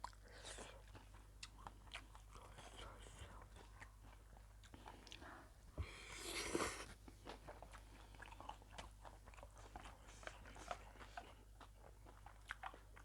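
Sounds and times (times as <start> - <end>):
wet chewing clicks: 7.1 - 13.0.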